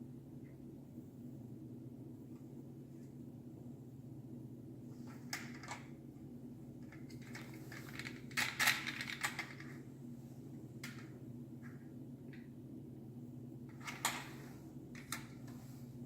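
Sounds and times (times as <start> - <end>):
steady low hum: 0.0 - 16.0
plastic clicks and rattles: 6.8 - 9.8.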